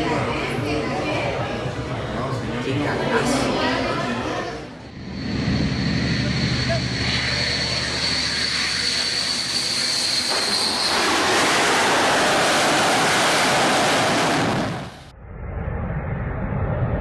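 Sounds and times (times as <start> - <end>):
jet engine whine and roar: 4.8 - 17.0.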